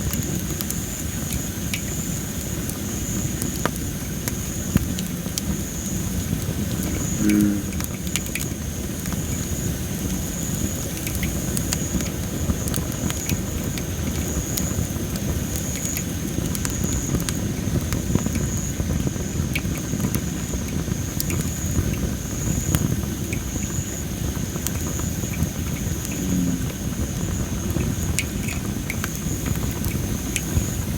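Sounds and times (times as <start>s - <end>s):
firewood crackling and popping: 0.0s - 7.1s, 7.8s - 30.9s
low rush of fire: 2.4s - 10.2s, 11.0s - 30.9s
high-pitched pulsing tone: 6.8s - 8.0s, 26.2s - 26.8s.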